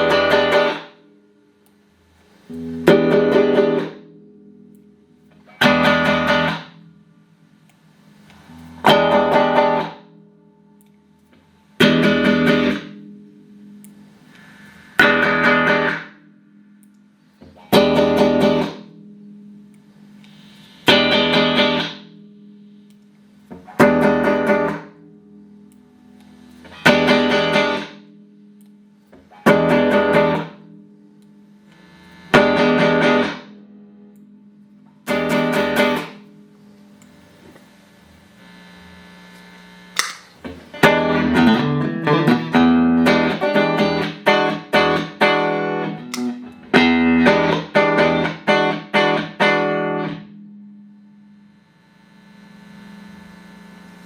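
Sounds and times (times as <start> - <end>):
clean electric guitar chords: 0.0 - 1.8, 2.4 - 37.7, 40.0 - 52.6
low held tone: 6.7 - 32.4.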